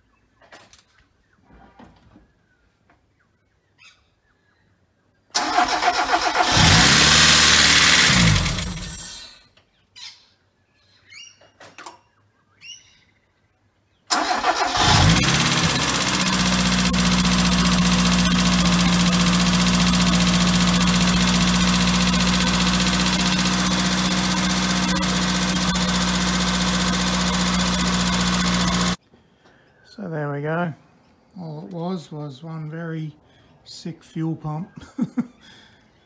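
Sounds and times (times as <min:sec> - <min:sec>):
car engine cranking and idling: 0:05.4 - 0:09.2, 0:14.1 - 0:29.0.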